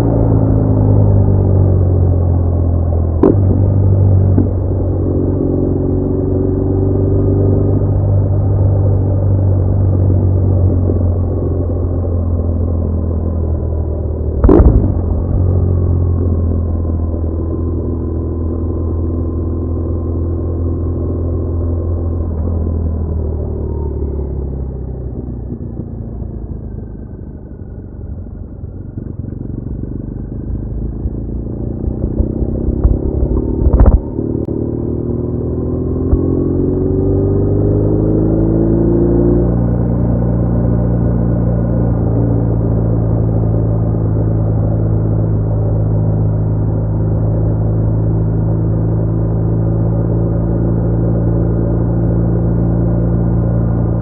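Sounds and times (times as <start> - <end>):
motorcycle engine running: 0.0 - 54.0
wind rumble: 8.5 - 18.7, 24.1 - 37.4
loud thump: 14.4 - 15.6, 32.0 - 34.2.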